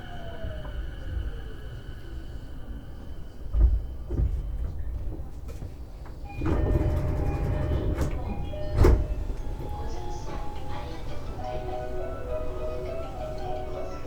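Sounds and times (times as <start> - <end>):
busy noise with steady tone: 0.0 - 14.0
train doors thudding open: 2.9 - 14.0.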